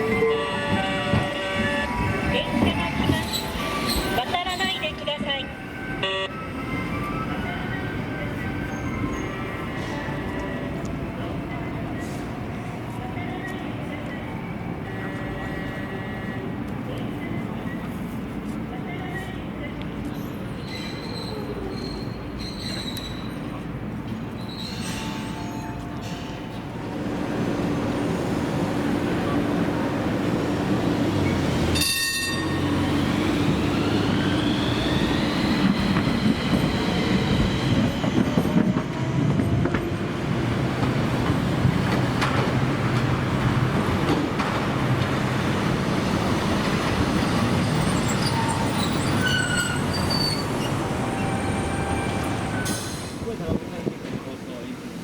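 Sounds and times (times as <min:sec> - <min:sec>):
tram running on track: 0:00.0 - 0:55.0
wheel squeal: 0:20.6 - 0:23.5, 0:24.4 - 0:25.6, 0:47.1 - 0:52.9
tram motor whine rising: 0:32.4 - 0:38.9.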